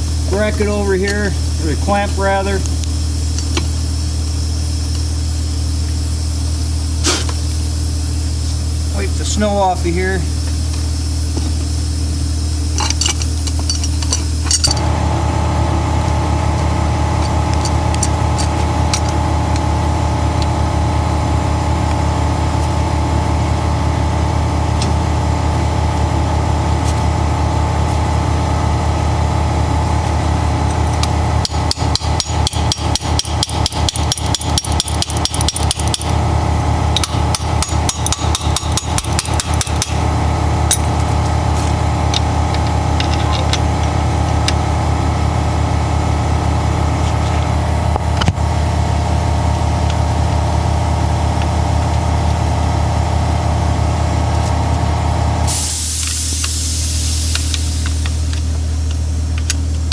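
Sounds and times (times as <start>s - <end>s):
low machine hum: 0.0s - 59.9s
impact wrench hammering: 31.0s - 36.2s, 36.9s - 41.0s.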